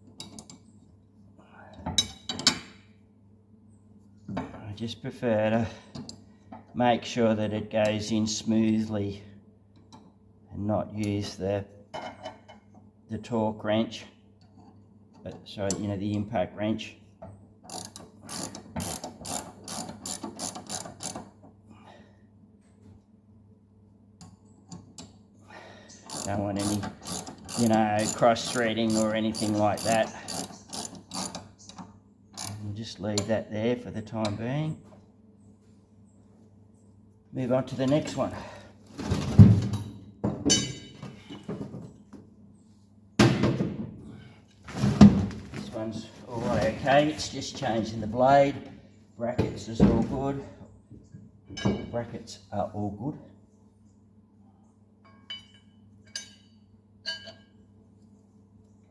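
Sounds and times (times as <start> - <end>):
hand ratchet clicking: 17.7 - 21.3, 26.1 - 31.5, 32.4 - 32.6
metal tools clanking: 39.8 - 41.5, 51.5 - 52.1, 55.1 - 57.6.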